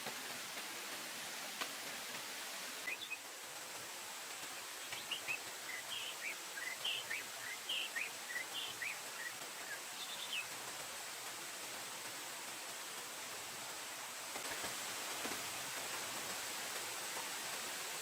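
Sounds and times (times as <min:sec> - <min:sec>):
steady background hiss: 0:00.0 - 0:18.0
bird chirping: 0:02.8 - 0:03.2, 0:04.8 - 0:10.5.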